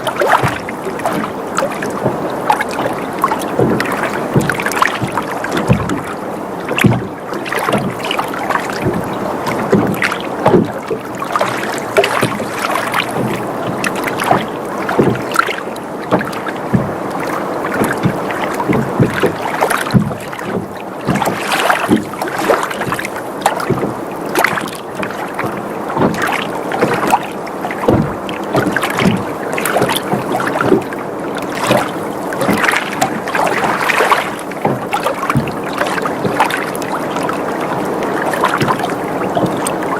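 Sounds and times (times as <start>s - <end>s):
boat creaking: 0.0s - 39.9s
water lapping against hull: 0.0s - 39.9s
water slapping and knocking: 0.0s - 39.9s.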